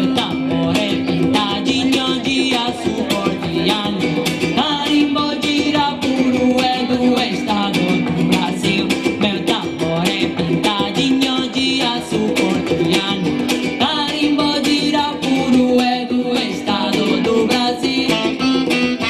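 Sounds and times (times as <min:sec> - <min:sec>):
fast percussive beat: 0:00.0 - 0:19.0
person singing: 0:00.0 - 0:19.0
plucked strings: 0:00.0 - 0:19.0.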